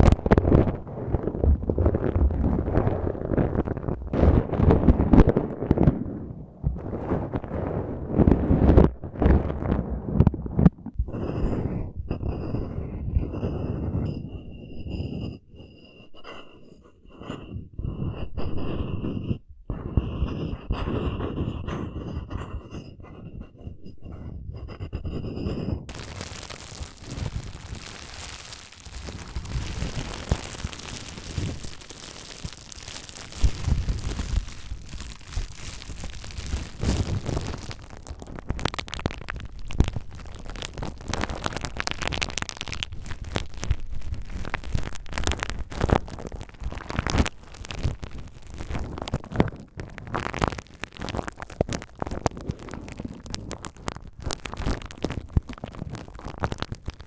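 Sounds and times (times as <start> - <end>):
bubble wrap rustling and popping: 0.0 - 5.9, 25.9 - 57.0.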